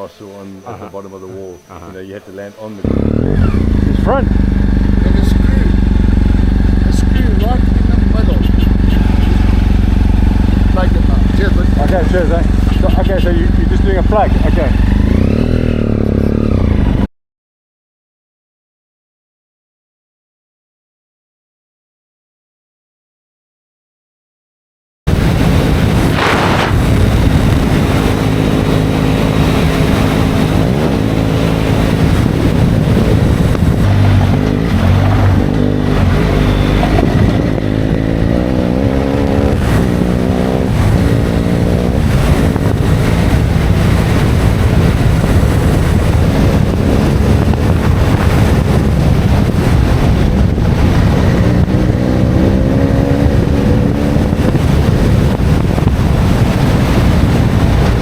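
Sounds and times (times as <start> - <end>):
motor engine revving: 2.8 - 17.1, 25.1 - 58.0
wind noise: 25.1 - 58.0.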